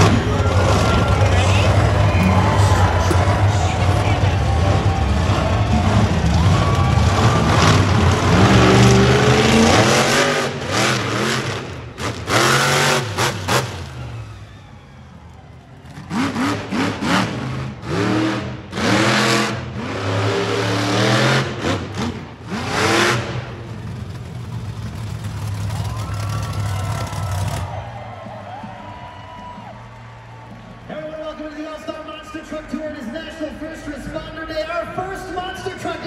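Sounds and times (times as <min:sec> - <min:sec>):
monster truck engine revving: 0:00.0 - 0:27.8.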